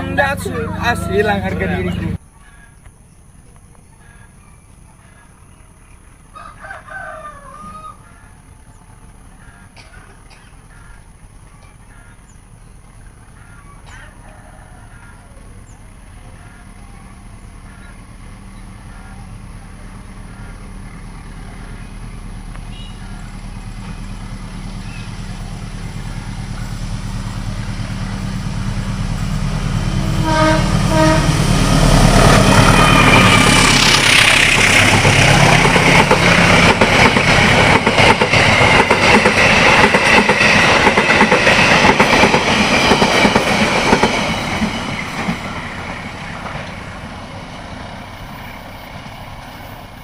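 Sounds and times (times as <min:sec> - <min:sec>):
diesel locomotive hum: 0:00.0 - 0:50.0
train wheels clattering on rails: 0:16.1 - 0:50.0
train horn: 0:22.5 - 0:23.3, 0:29.2 - 0:34.4.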